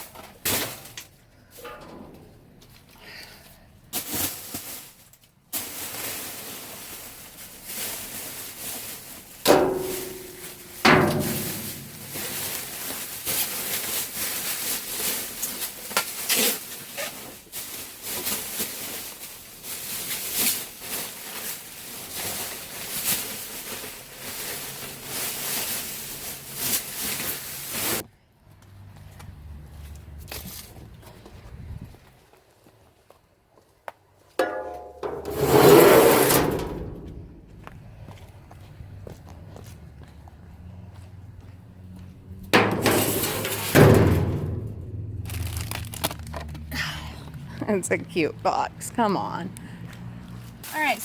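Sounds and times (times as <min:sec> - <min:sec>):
rustling and clattering of packaging: 0:00.0 - 0:28.0, 0:34.4 - 0:38.1, 0:42.4 - 0:47.6
loud metal clanks ringing: 0:09.5 - 0:12.6, 0:34.4 - 0:37.4.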